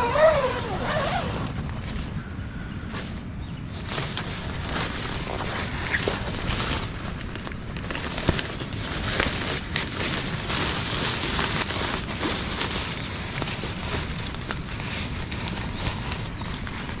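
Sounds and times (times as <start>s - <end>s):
small clicks and crackles: 3.7s - 17.0s.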